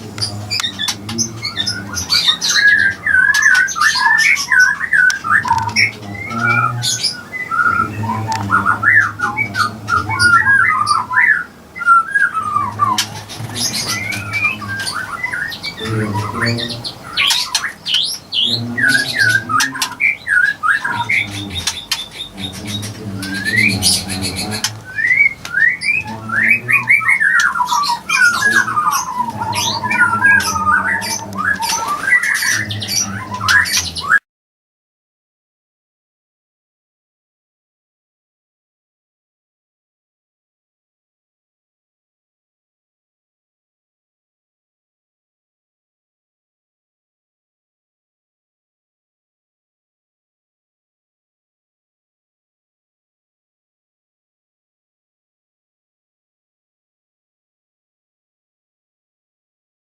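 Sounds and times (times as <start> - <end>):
birds squawking and chirping: 0.0 - 34.2
low pulsing bird calls: 0.0 - 34.2.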